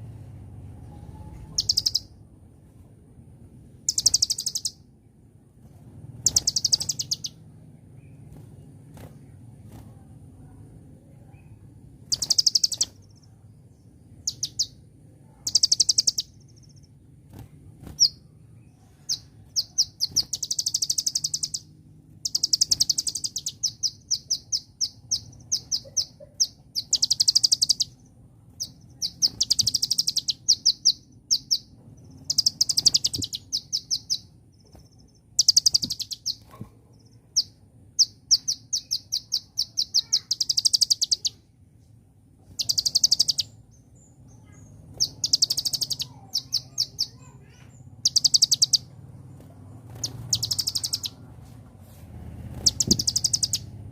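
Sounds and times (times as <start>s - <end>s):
sunbird chattering trills: 0.9s - 2.1s, 3.9s - 4.8s, 6.2s - 7.4s, 11.4s - 13.4s, 14.2s - 16.9s, 17.8s - 41.6s, 42.5s - 51.3s, 52.5s - 53.8s.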